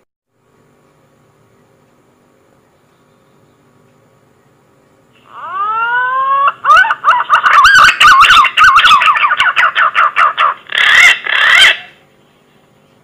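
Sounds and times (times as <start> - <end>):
pigeon lure call whistling: 5.3 - 12.0.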